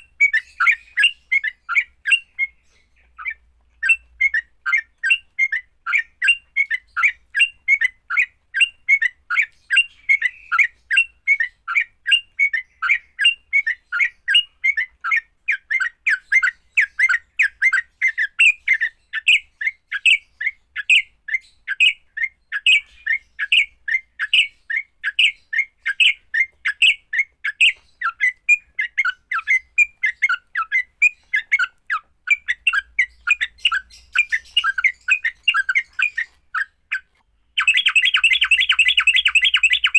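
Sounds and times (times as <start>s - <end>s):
bird chirping sharply: 21.4s - 39.9s.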